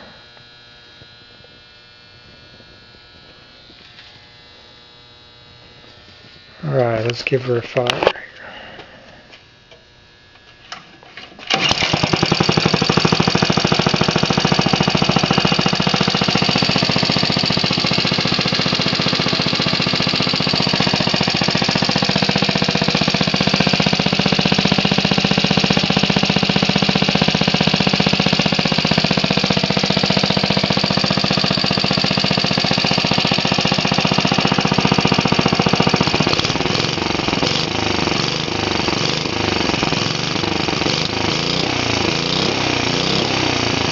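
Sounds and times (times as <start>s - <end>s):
small engine running: 11.5s - 43.9s.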